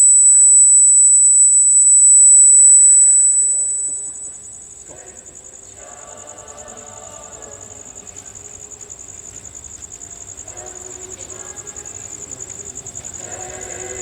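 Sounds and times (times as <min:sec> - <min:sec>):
cricket trilling: 0:00.0 - 0:14.0
faint voices: 0:04.1 - 0:14.0.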